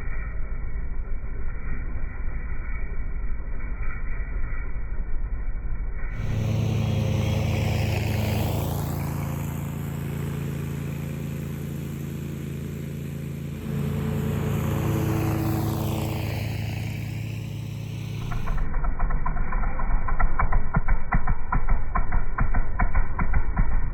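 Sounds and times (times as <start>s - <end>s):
mower engine running: 6.1s - 23.9s.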